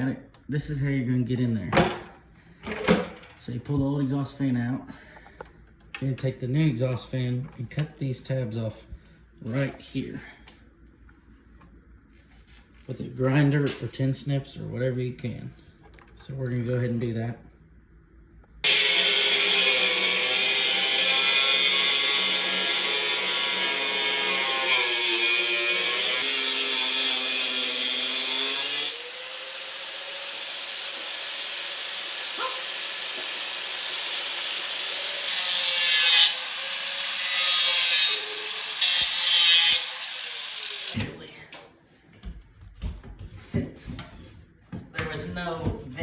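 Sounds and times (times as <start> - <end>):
angle grinder cutting metal: 18.6 - 41.1.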